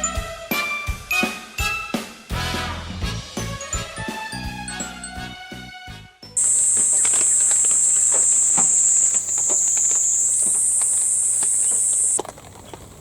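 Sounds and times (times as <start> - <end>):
insects buzzing: 6.4 - 13.0.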